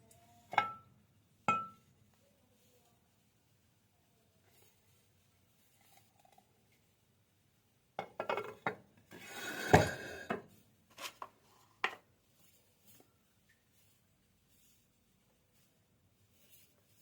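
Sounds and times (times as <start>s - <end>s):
hard objects knocking and clattering: 9.4s - 10.4s.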